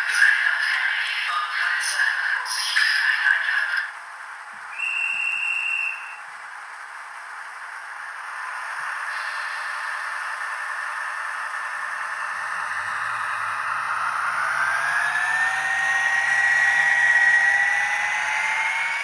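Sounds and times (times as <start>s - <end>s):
steady hiss from loudspeaker: 0.0s - 4.0s
low engine rumble: 6.3s - 19.0s.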